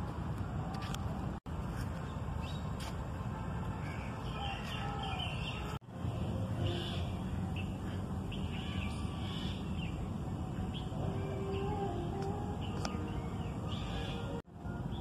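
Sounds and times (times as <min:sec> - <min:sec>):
birds chirping: 0:03.8 - 0:15.0.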